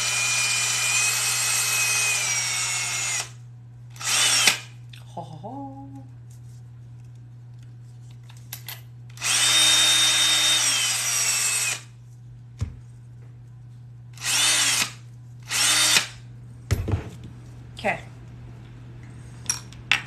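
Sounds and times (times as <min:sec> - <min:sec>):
electric power drill running: 0:00.0 - 0:04.7, 0:09.1 - 0:12.0, 0:14.2 - 0:16.2.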